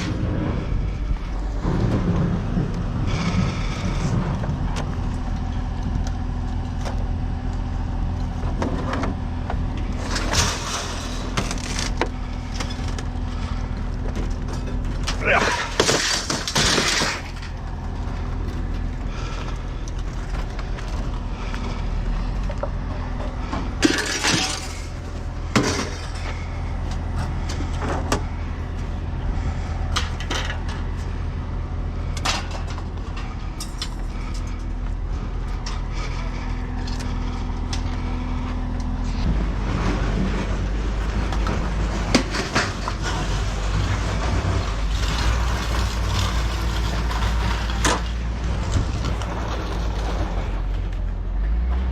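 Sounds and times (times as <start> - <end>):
low machinery hum: 0.0 - 51.9
scrap metal clanking: 9.8 - 28.4, 39.0 - 50.8.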